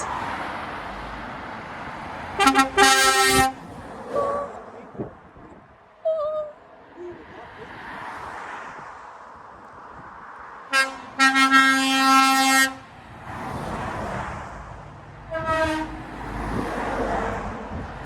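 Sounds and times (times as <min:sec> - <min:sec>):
truck engines rumbling: 0:00.0 - 0:18.0
truck air horns: 0:02.4 - 0:03.6, 0:10.7 - 0:12.8, 0:15.3 - 0:16.1.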